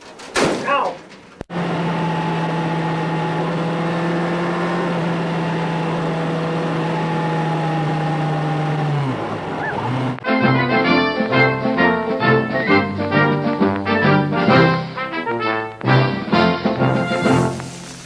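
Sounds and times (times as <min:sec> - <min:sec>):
motor running and winding down: 0:01.5 - 0:10.2.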